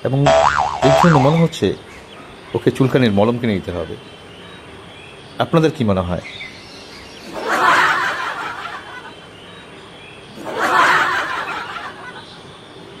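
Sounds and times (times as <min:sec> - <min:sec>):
laughter: 0:07.2 - 0:09.2, 0:10.4 - 0:12.4.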